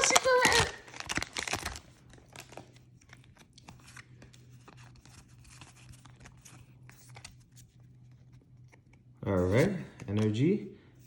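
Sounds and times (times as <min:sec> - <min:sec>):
foil wrapper crinkling and tearing: 0:00.0 - 0:07.5
steady low hum: 0:00.0 - 0:11.0.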